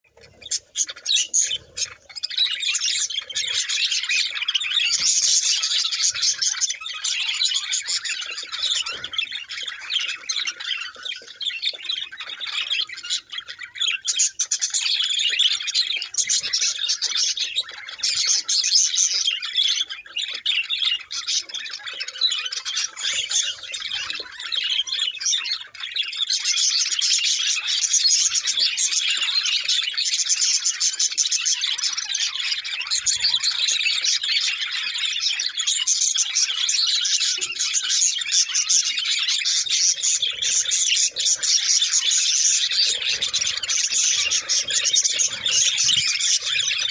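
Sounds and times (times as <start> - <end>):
budgies chattering and squawking: 0.1 - 46.9.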